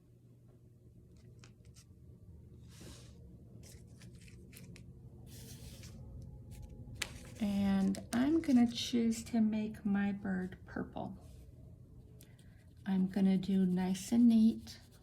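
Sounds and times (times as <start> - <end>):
crayon scratching on paper: 12.5 - 15.0.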